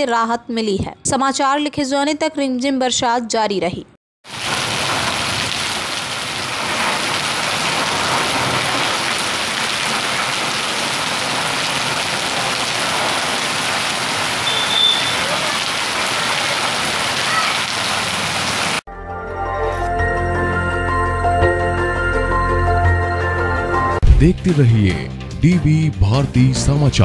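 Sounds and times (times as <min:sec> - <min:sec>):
steady rain falling: 0:04.3 - 0:18.8
water pouring onto wet paving: 0:04.3 - 0:18.8.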